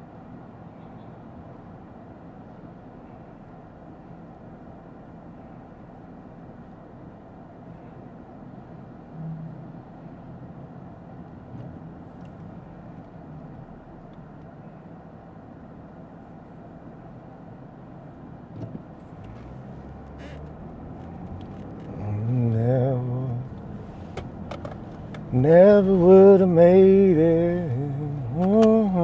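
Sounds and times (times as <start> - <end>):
car cabin road noise: 0.0 - 29.0
man singing long note: 25.3 - 29.0.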